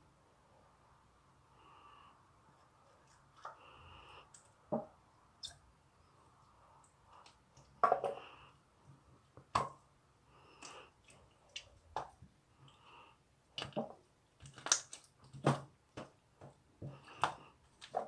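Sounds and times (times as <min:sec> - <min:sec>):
slime squelching: 0:10.4 - 0:18.0.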